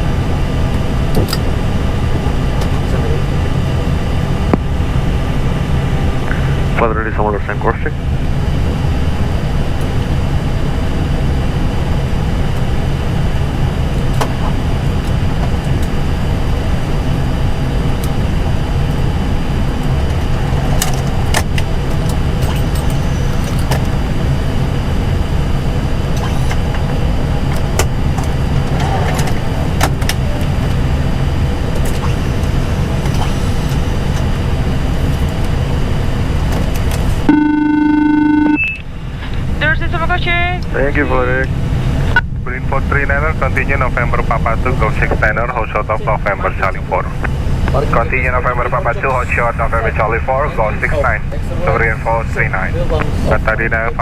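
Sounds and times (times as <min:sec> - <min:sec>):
cockpit hum and airflow rush: 0:00.0 - 0:54.0
short electronic tone: 0:37.3 - 0:38.9.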